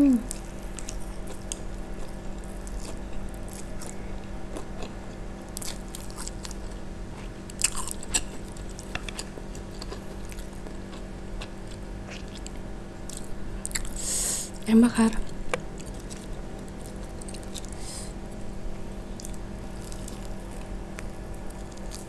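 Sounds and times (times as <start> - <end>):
crunchy bites: 0.3 - 6.8
chewing mouth sounds: 7.2 - 14.0, 15.5 - 17.8.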